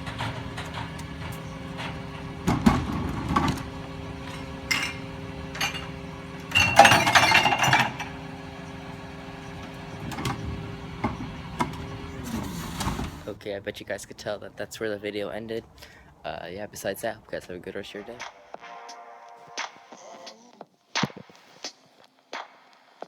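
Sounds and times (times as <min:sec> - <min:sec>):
glass bottles clinking: 0:00.0 - 0:08.5
recyclables clattering into hopper: 0:00.0 - 0:13.4
recycling truck humming: 0:00.0 - 0:13.6.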